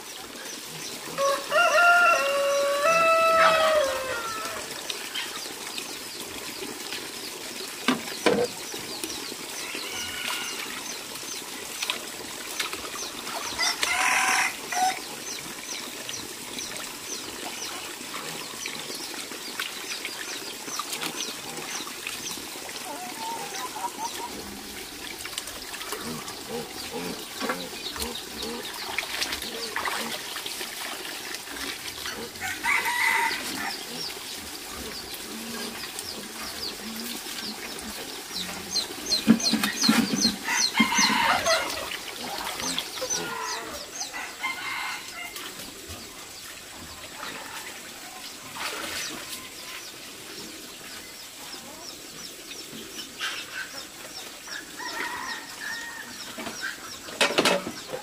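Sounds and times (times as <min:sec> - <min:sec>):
roosters crowing: 0:01.1 - 0:04.8, 0:09.6 - 0:10.7, 0:13.6 - 0:15.0, 0:32.2 - 0:33.9, 0:40.1 - 0:45.4, 0:54.7 - 0:56.4
chickens clucking: 0:19.8 - 0:30.3, 0:31.6 - 0:58.0.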